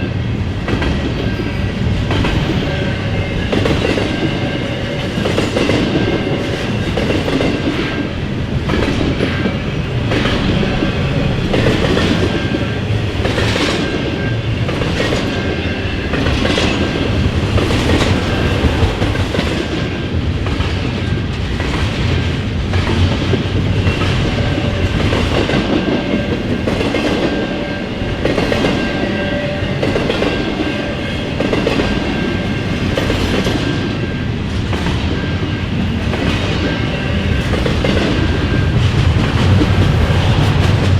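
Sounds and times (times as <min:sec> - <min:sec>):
freight train rumbling past: 0:00.0 - 0:40.9.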